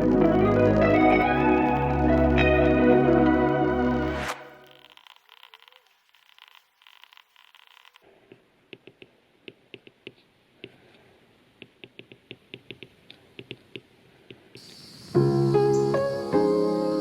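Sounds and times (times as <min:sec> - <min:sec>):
light sharp taps and clicks: 0:11.6 - 0:14.4.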